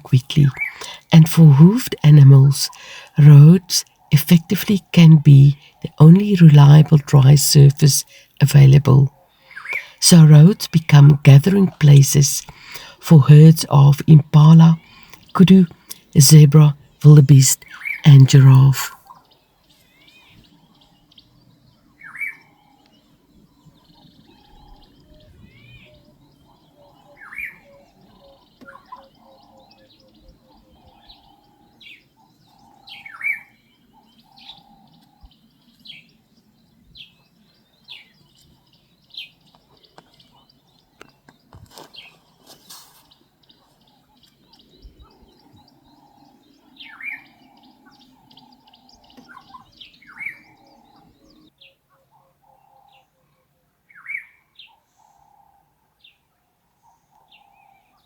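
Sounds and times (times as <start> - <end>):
background chorus of bird trills: 0.0 - 58.0
birds chirping and calling: 0.0 - 58.0.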